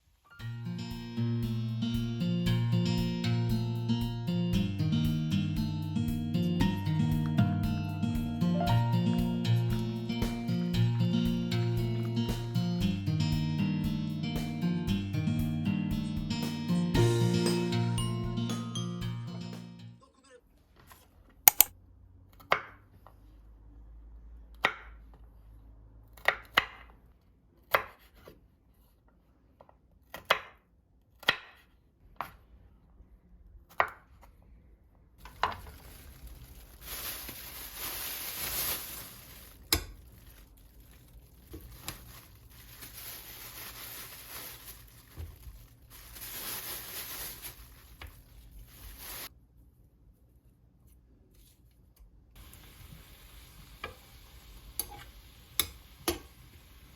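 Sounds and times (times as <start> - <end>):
knife chopping on cutting board: 27.7 - 28.3
steady hiss: 52.4 - 56.9.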